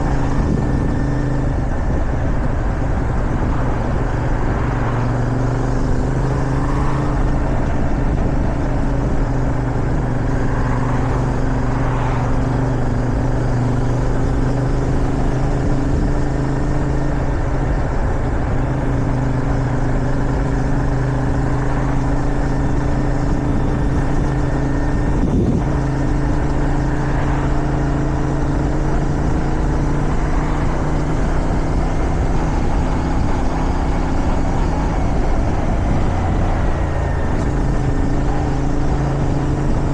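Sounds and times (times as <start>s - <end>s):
motorcycle engine cruising: 0.0s - 39.9s
wind on microphone: 0.0s - 39.9s.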